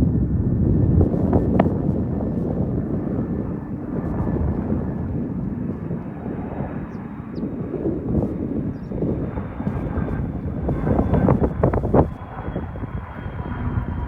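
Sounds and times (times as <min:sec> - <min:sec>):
jet engines rumbling: 0:00.0 - 0:14.0
faint thin whine: 0:01.0 - 0:07.5, 0:08.1 - 0:12.2.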